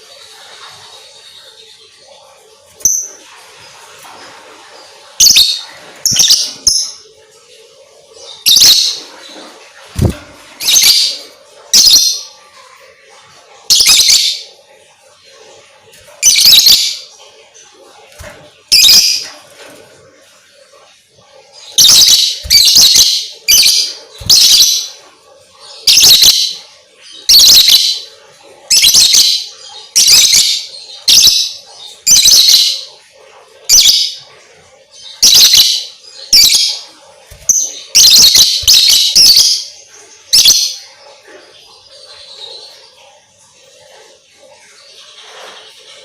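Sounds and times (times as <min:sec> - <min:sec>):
lovebird shrill chirping: 0:16.2 - 0:17.0, 0:21.8 - 0:24.9, 0:25.9 - 0:26.5, 0:35.2 - 0:39.7, 0:40.3 - 0:40.8.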